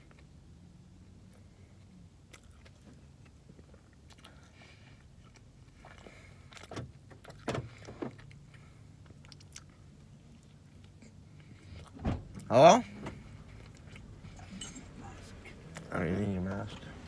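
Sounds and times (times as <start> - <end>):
car engine idling: 11.4 - 17.0.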